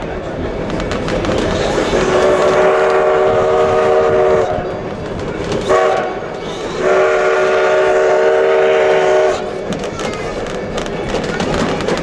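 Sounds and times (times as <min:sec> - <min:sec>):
steam locomotive whistle: 0:01.9 - 0:04.7, 0:05.6 - 0:09.6.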